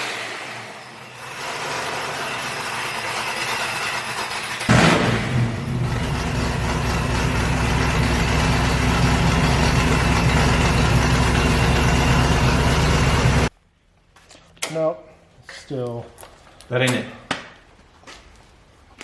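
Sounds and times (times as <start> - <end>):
vehicle engine idling: 2.8 - 13.5.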